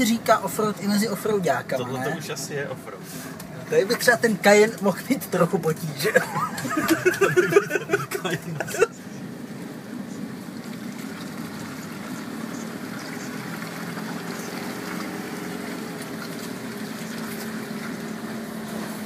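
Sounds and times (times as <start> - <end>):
diesel engine running at low revs: 6.6 - 19.0.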